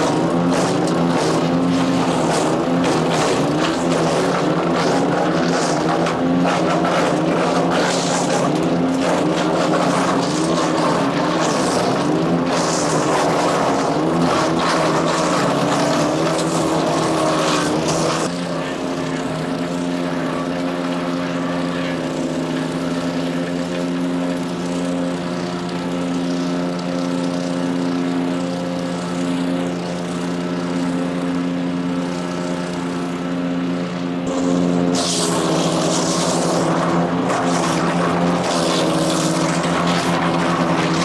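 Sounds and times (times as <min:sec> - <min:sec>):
material crackling through chipper: 0:00.0 - 0:18.3, 0:34.3 - 0:41.0
wood chipper engine running: 0:00.0 - 0:41.0.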